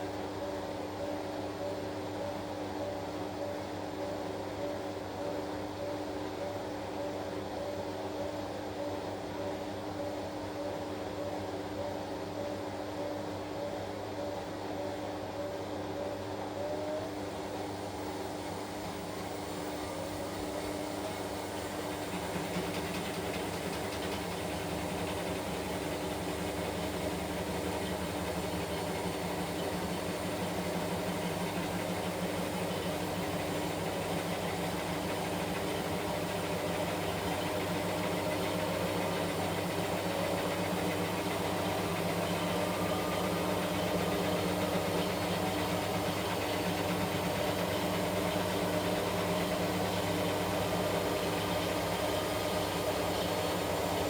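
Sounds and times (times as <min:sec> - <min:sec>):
washing machine motor hum: 0:17.2 - 0:54.0.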